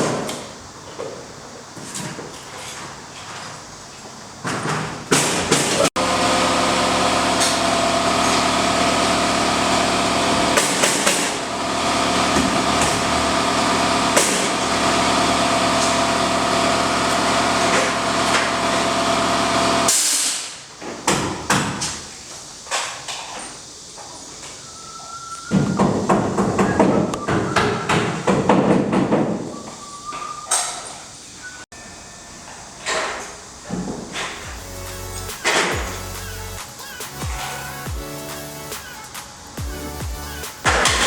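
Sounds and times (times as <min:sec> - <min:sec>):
motor running at steady pitch: 0:06.0 - 0:19.9.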